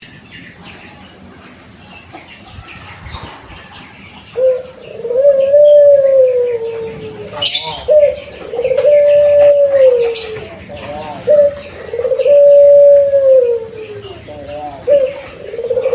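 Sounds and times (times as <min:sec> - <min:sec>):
dove cooing: 0:02.5 - 0:15.9.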